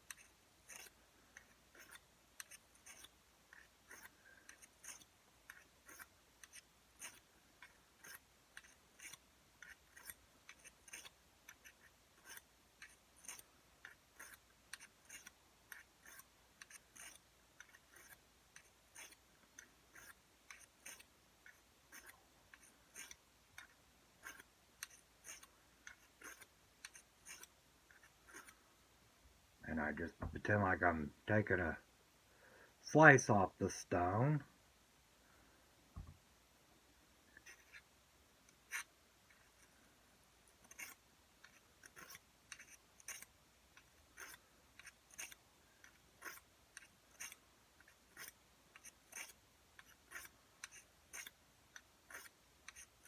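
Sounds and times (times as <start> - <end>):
blade scraping on sharpening stone: 0.1 - 28.5, 40.6 - 43.3, 44.2 - 51.4, 52.1 - 53.0.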